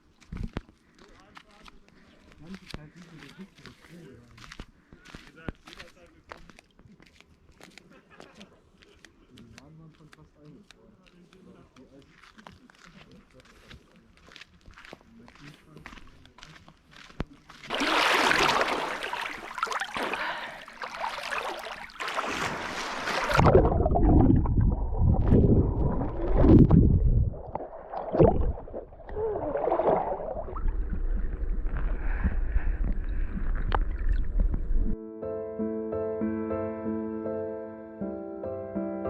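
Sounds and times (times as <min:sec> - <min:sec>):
canoe splashing on water: 0:17.7 - 0:34.9
wind rumble on microphone: 0:23.4 - 0:27.6, 0:30.5 - 0:35.0.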